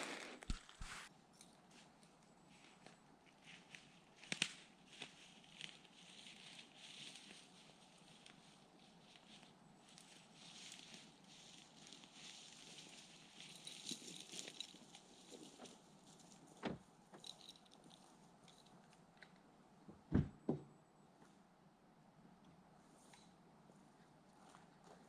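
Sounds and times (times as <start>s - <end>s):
rustling: 0.0s - 19.4s.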